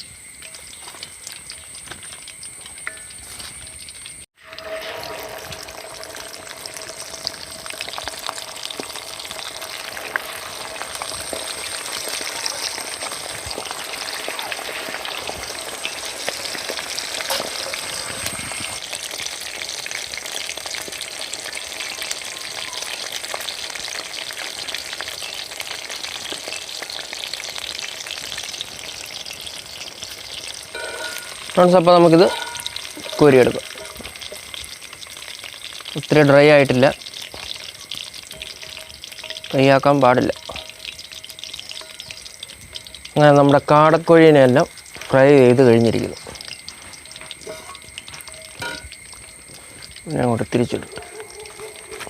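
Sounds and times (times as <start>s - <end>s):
meat frying in hot oil: 0.0s - 52.0s.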